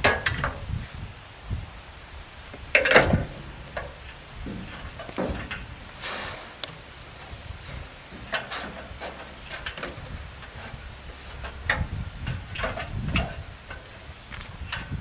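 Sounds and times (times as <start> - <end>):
clunks and knocks: 2.6 - 5.8, 6.7 - 15.0.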